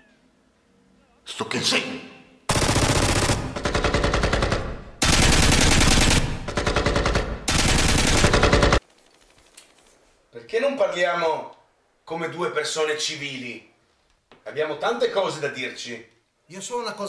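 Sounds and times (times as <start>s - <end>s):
automatic rifle fire: 2.5s - 8.8s.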